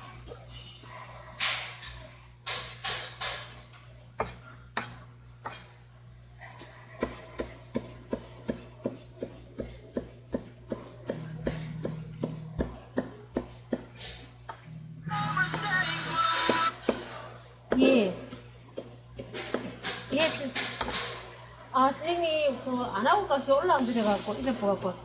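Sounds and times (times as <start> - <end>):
low steady hum: 3.7 - 25.0
knife chopping on cutting board: 4.2 - 5.7, 6.6 - 14.0, 15.5 - 21.1.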